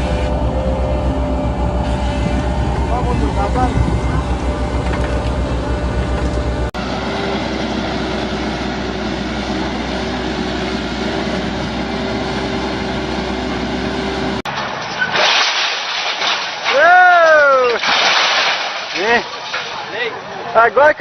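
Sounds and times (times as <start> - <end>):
heavy vehicle engine droning: 0.0 - 14.9.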